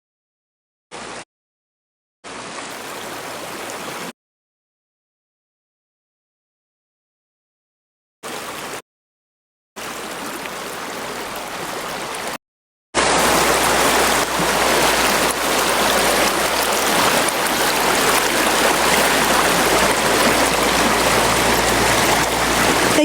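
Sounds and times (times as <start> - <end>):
river water flowing: 2.3 - 4.1, 8.3 - 8.8, 9.8 - 12.4, 13.0 - 23.0.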